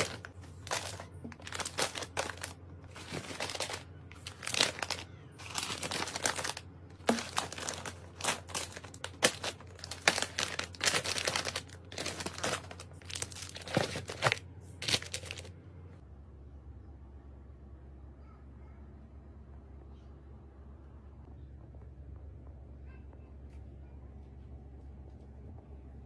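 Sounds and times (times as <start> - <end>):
plastic packaging crinkling: 0.0 - 15.5.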